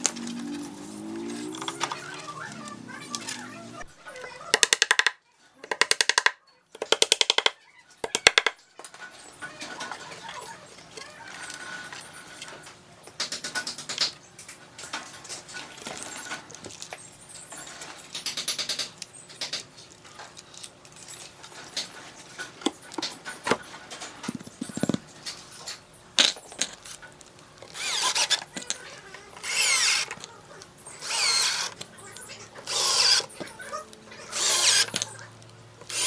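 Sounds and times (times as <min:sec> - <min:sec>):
power drill running: 0:27.7 - 0:28.4, 0:29.4 - 0:30.2, 0:31.0 - 0:31.8, 0:32.6 - 0:33.3, 0:34.3 - 0:35.0.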